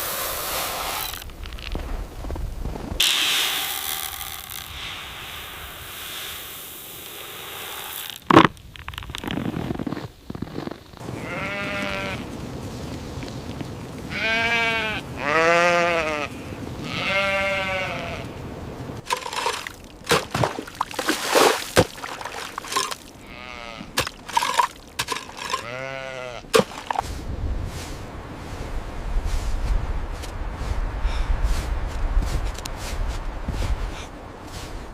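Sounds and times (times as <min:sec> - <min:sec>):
bleat-like animal calls: 0:11.2 - 0:12.2, 0:14.1 - 0:18.3, 0:23.2 - 0:24.0, 0:25.6 - 0:26.5.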